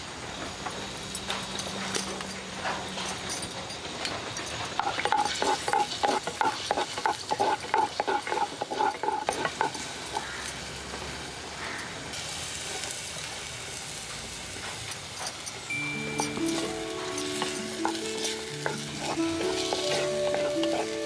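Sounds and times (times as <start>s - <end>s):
oil sizzling: 4.6s - 21.0s
wooden spoon scraping a pot: 4.7s - 10.5s, 16.3s - 21.0s.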